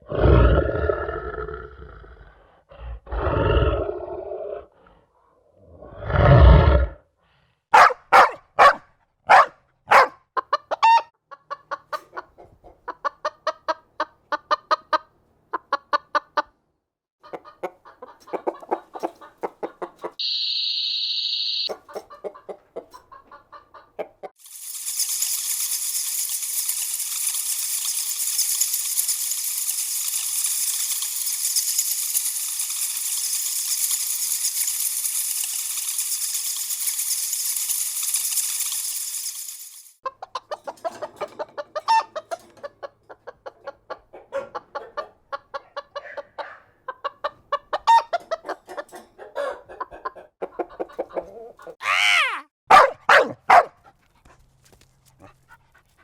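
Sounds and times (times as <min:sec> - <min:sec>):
chickens clucking: 0:07.8 - 0:08.7, 0:09.3 - 0:16.6, 0:17.2 - 0:20.2, 0:21.7 - 0:24.3, 0:40.0 - 0:51.8
high beep: 0:20.2 - 0:21.7.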